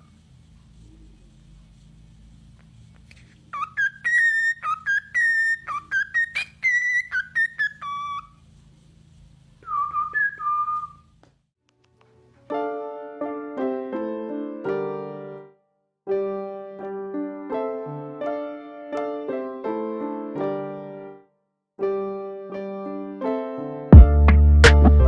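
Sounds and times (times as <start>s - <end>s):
bird whistling: 3.5s - 8.4s, 9.6s - 11.1s
piano music: 12.5s - 25.0s.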